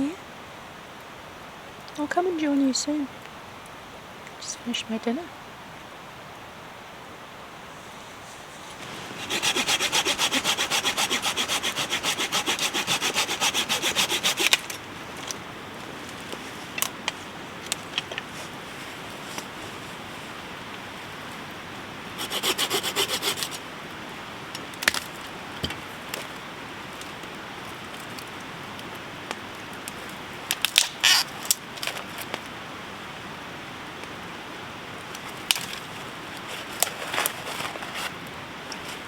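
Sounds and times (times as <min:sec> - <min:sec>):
rain hissing: 0:00.0 - 0:39.0
quick rasping strokes: 0:08.4 - 0:14.8, 0:22.2 - 0:23.6.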